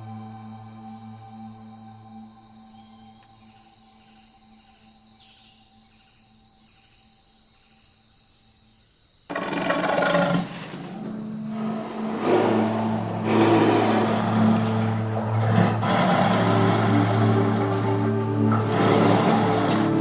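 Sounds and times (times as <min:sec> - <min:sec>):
soft ambient music: 0:00.0 - 0:07.3, 0:11.0 - 0:20.0
high insect drone: 0:00.0 - 0:20.0
tiger roaring: 0:09.3 - 0:20.0.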